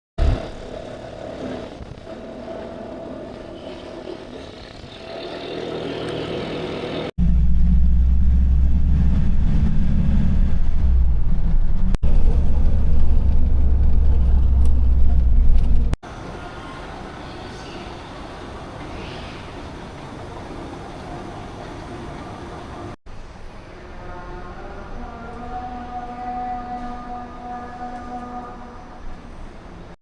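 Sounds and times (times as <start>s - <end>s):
loud low vehicle rumble: 5.0s - 16.0s
vehicle hum with steady tones: 5.6s - 16.0s.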